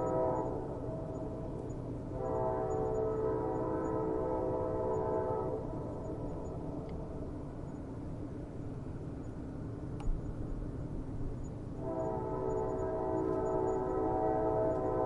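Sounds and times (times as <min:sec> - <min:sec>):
distant train horn blast: 0:00.0 - 0:05.9, 0:11.8 - 0:15.0.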